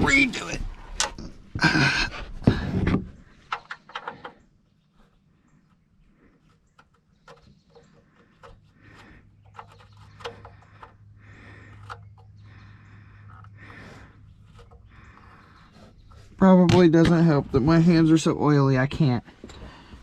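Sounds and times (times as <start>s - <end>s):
drain plug clicking and scraping: 2.5s - 5.1s, 5.7s - 17.6s.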